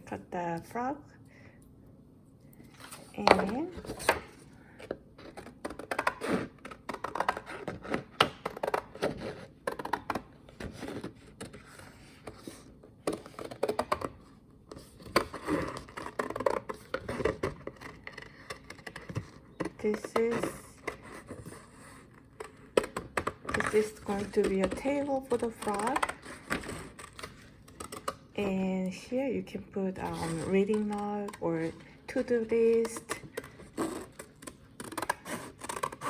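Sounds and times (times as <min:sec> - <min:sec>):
scissors cutting thick paper: 0:30.0 - 0:36.0.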